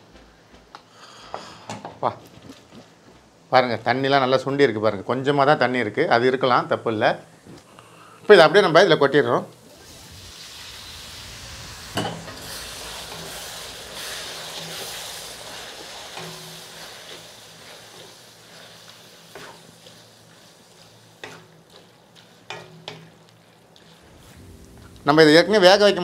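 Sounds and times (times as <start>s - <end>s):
food sizzling in hot oil: 9.4s - 25.2s.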